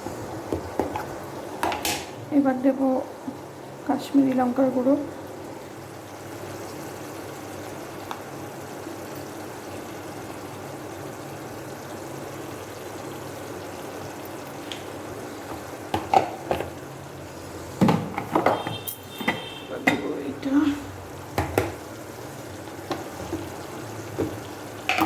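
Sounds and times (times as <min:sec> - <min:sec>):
paste sizzling in hot oil: 0:05.6 - 0:17.9, 0:19.4 - 0:25.0.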